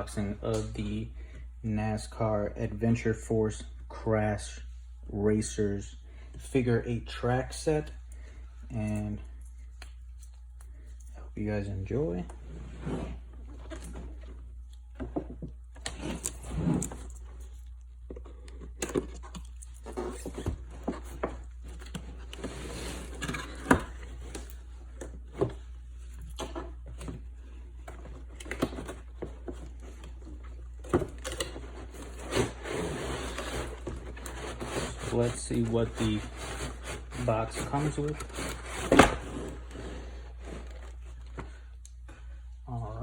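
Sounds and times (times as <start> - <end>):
steady low hum: 0.0 - 43.0
cardboard box handled and opened: 26.5 - 41.5.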